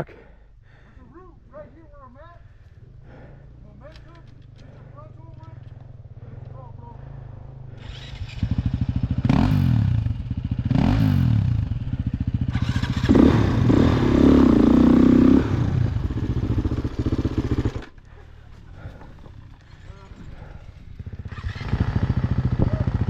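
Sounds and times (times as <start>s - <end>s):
dirt bike engine revving: 4.6s - 18.0s, 18.7s - 23.0s.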